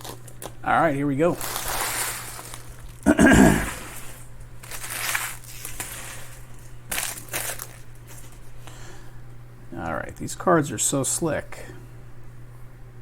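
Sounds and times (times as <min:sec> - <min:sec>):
card pack wrapper tearing: 0:00.0 - 0:00.6, 0:01.3 - 0:08.4.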